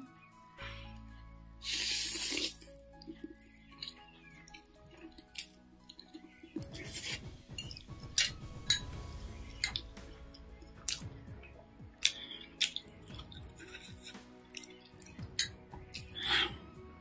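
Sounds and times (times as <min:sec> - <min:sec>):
person chewing noodles: 0:01.6 - 0:06.3, 0:12.0 - 0:16.6.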